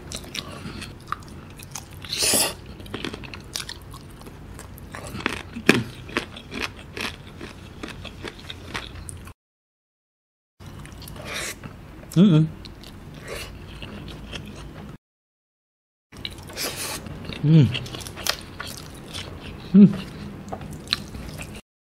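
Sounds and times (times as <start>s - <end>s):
wet chewing: 16.2s - 21.6s.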